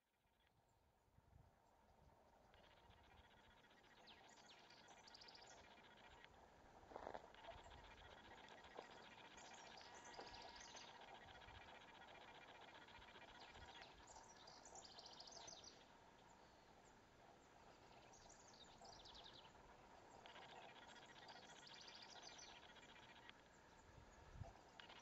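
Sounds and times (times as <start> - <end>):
bird trilled calls: 2.5 - 16.6, 17.3 - 25.0
buzzy bird trill: 2.6 - 6.2, 7.1 - 15.8, 17.7 - 23.3, 24.4 - 25.0.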